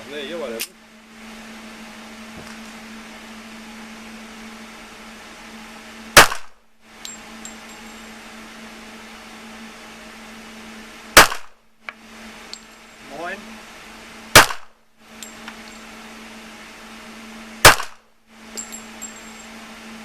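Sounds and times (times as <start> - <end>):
steady low hum: 0.0 - 20.0
pistol shot: 6.2 - 6.6, 11.2 - 11.6, 14.3 - 14.8, 17.6 - 18.0.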